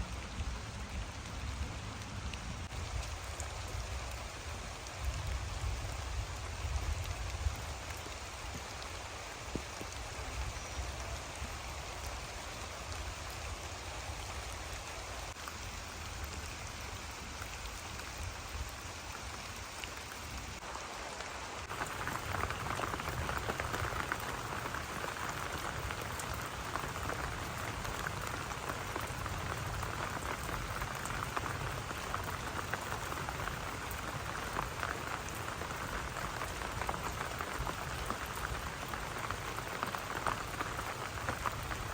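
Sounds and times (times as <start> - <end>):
rain falling: 0.0 - 41.9.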